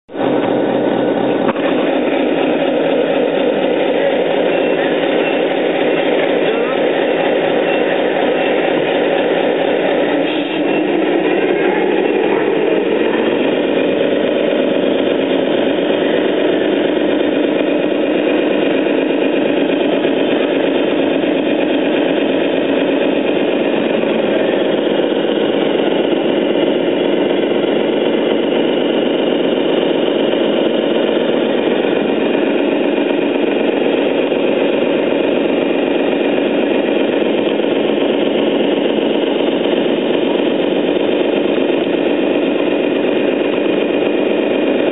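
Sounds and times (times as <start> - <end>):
model truck drive sound: 0.1 - 44.9.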